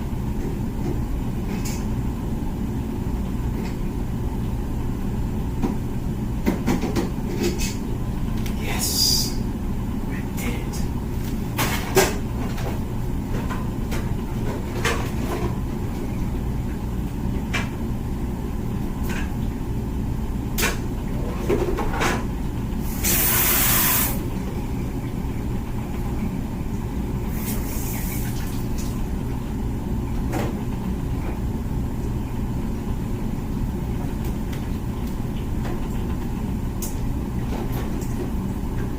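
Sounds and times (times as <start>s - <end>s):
dishwasher pump rumble: 0.0s - 38.9s
dishwasher hiss: 8.7s - 9.4s, 22.8s - 24.3s, 27.3s - 28.6s
water spraying and sloshing: 22.8s - 24.3s, 27.3s - 29.1s.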